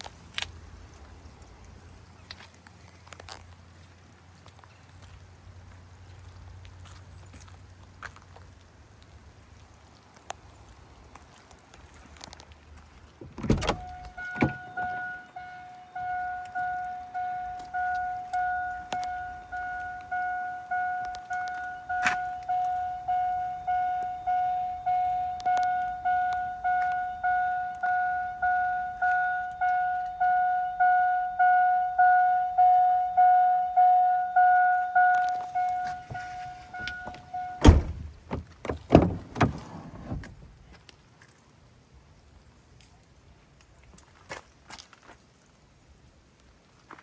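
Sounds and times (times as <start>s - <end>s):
vehicle warning chime pinging: 13.4s - 40.2s
loud thump: 36.1s - 40.3s.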